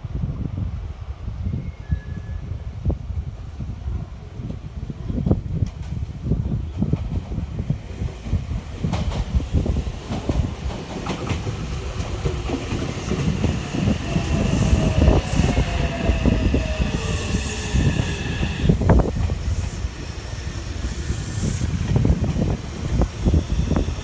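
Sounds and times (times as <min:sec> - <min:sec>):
train rumble: 0:00.0 - 0:24.0
high hiss bursts: 0:12.9 - 0:24.0
steady high tones: 0:13.1 - 0:21.9
falling brake whine: 0:22.9 - 0:24.0.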